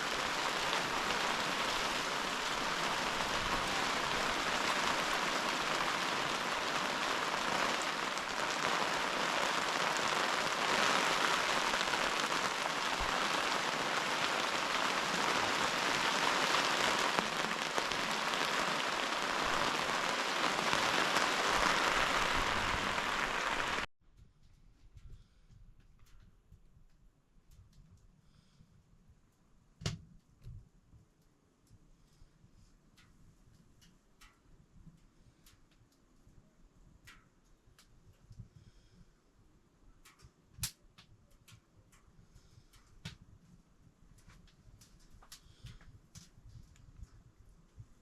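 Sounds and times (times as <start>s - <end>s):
heavy rain falling: 0.0s - 23.9s.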